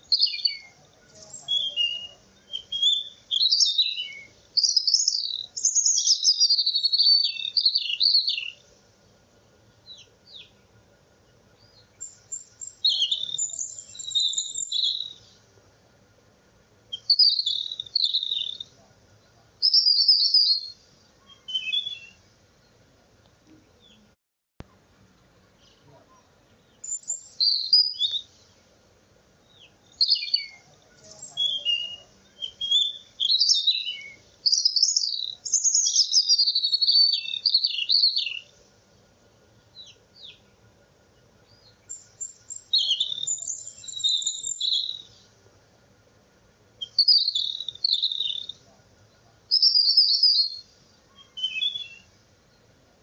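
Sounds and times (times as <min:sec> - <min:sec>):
bird chirping and trilling: 0:00.0 - 0:08.6, 0:11.6 - 0:15.4, 0:16.9 - 0:18.7, 0:19.6 - 0:22.2, 0:26.7 - 0:28.4, 0:29.5 - 0:38.5, 0:41.5 - 0:45.2, 0:46.8 - 0:48.6, 0:49.5 - 0:52.1.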